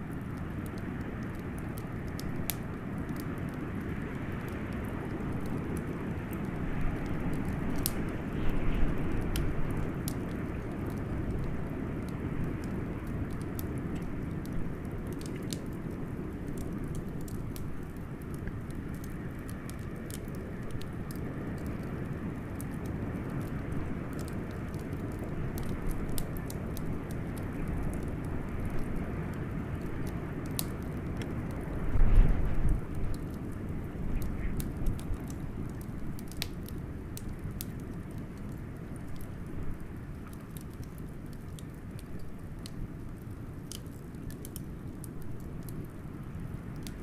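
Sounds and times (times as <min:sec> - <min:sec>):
wood fire crackling: 0:00.0 - 0:47.0
blizzard wind rumbling: 0:18.2 - 0:35.8.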